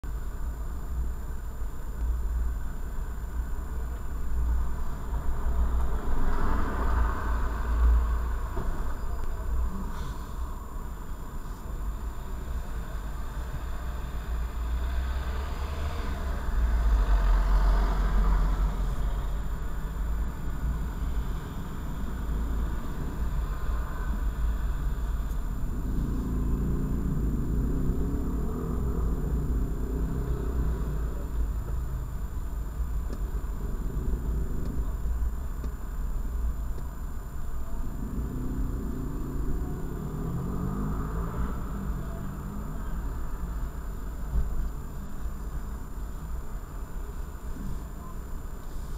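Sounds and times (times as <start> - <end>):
car engine idling: 18.0 - 48.9.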